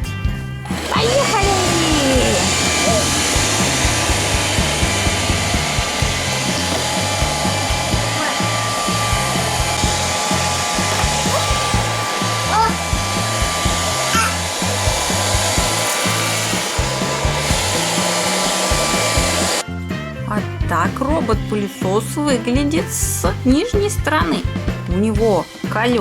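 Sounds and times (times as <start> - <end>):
background music with bass line: 0.0 - 26.0
robot vacuum suction whirring: 0.6 - 19.6.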